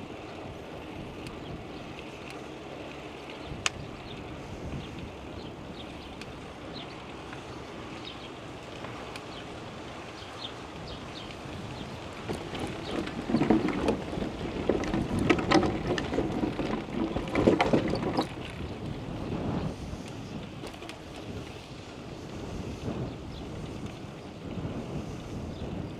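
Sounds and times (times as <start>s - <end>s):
wind noise on microphone: 0.0s - 2.2s, 3.3s - 25.9s
short clicks and rattles: 12.2s - 18.7s.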